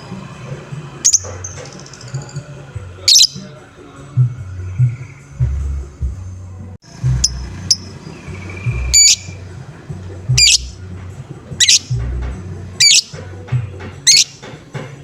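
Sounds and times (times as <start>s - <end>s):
lovebird harsh calls: 1.0s - 2.3s, 3.0s - 3.5s, 7.1s - 9.5s, 10.3s - 10.8s, 11.6s - 12.1s, 12.8s - 13.2s, 14.0s - 14.5s
bird chirps: 1.0s - 3.6s, 6.9s - 14.6s.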